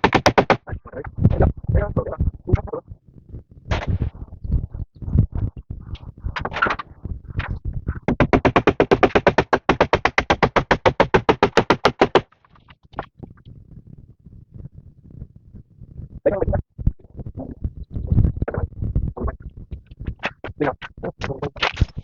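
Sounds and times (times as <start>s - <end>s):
rapid sharp knocks: 0.0s - 0.8s, 7.4s - 12.4s.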